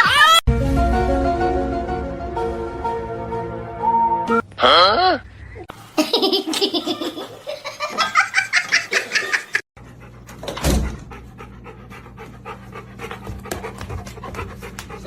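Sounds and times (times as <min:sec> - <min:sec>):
dog panting: 0:09.8 - 0:15.0.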